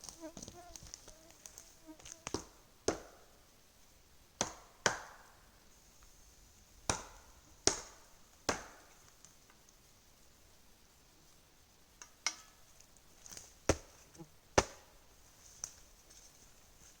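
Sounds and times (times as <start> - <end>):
hammering or chopping blows: 4.4 - 5.2, 6.9 - 8.8.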